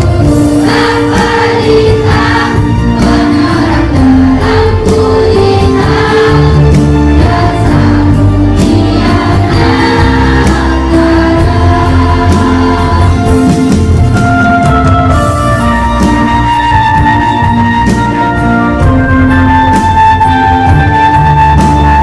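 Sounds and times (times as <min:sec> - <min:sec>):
children's choir singing: 0:00.0 - 0:14.2
instrumental backing track with beat: 0:00.0 - 0:22.0.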